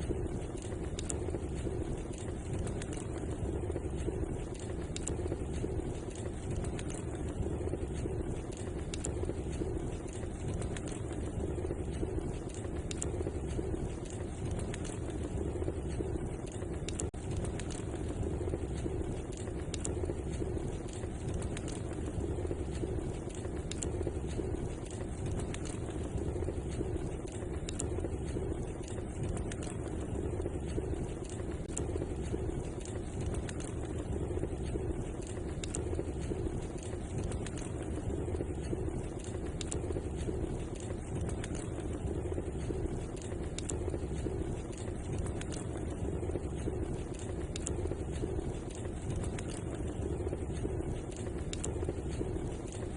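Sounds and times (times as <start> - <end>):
fire pops and snaps: 0.0 - 52.9
low rumble of burning: 0.0 - 52.9
wood fire crackling: 0.0 - 52.9.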